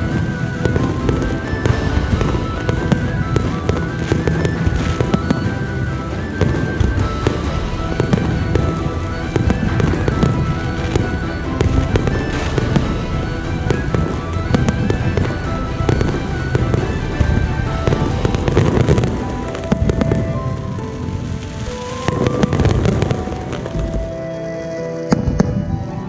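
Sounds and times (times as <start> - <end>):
fireworks bangs and crackle: 0.0 - 26.0
music playing: 0.0 - 26.0.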